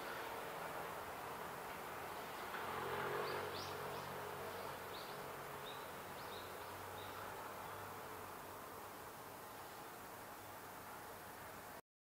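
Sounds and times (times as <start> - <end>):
faint hiss: 0.0 - 11.8
songbird chirping: 3.2 - 7.9.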